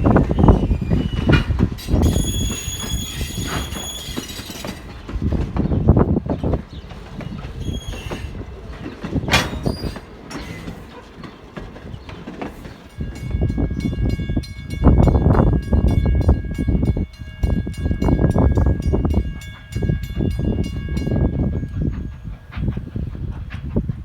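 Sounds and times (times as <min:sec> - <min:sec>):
steam locomotive exhaust: 0:15.0 - 0:24.0.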